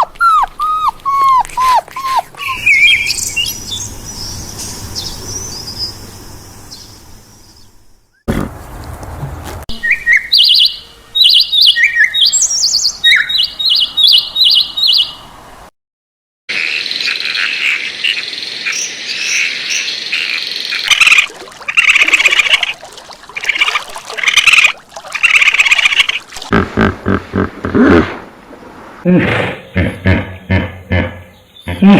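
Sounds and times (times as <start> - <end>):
birds chirping and chattering: 2.1 - 7.6, 29.3 - 31.9.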